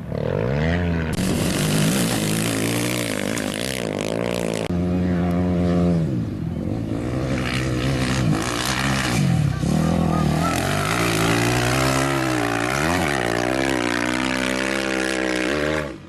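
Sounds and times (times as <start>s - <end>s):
motorcycle engine revving hard: 0.0s - 16.0s.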